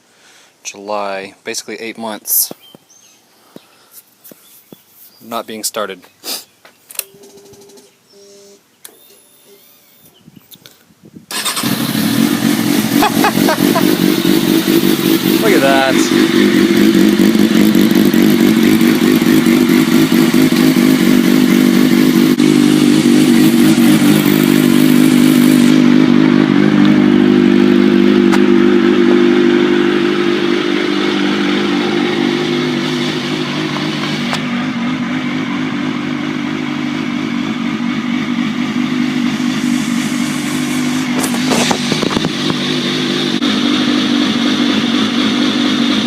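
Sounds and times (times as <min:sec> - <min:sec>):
motorcycle engine idling: 0:11.4 - 0:46.0.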